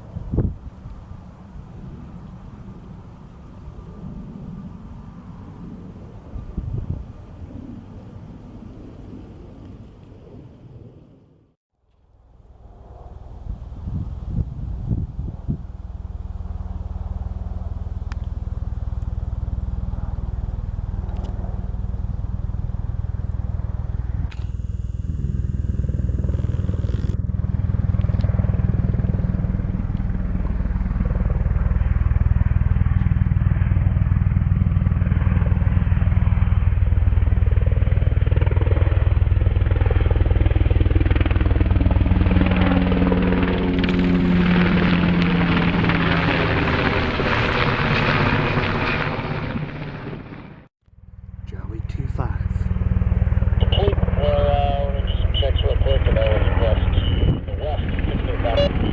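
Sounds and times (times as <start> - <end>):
low-flying aircraft rumble: 0.0 - 58.9
steady pitched hum: 15.6 - 32.7, 50.9 - 58.8.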